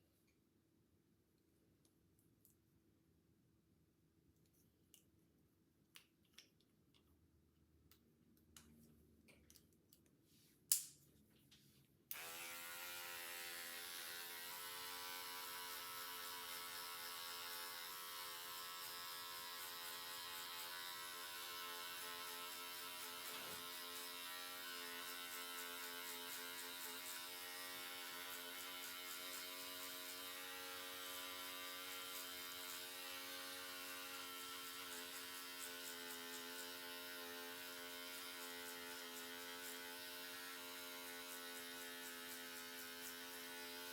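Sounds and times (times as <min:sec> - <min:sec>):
electric hair clippers buzzing: 0:12.1 - 0:43.9.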